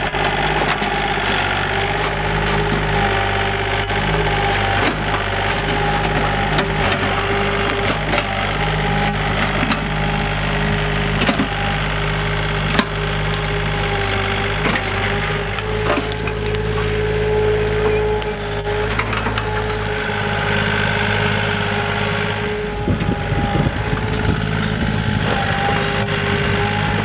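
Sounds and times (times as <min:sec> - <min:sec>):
bonfire crackling and popping: 0:11.9 - 0:22.4, 0:23.4 - 0:27.0.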